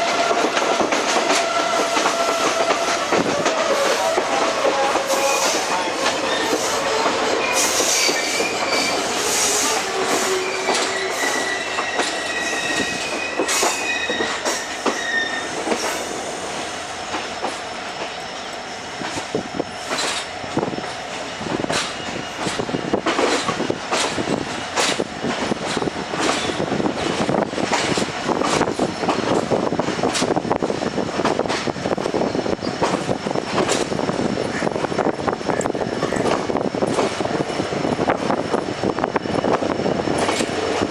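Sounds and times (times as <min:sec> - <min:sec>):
train wheel flange squeal: 0:00.0 - 0:30.5, 0:32.0 - 0:40.6
wheels clattering over rail joints: 0:21.5 - 0:30.5.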